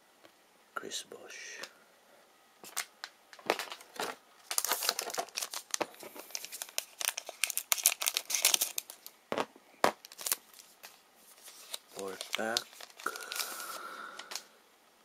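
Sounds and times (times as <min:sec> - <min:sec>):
wrapper tearing and crinkling: 0:02.7 - 0:09.1, 0:09.9 - 0:14.5.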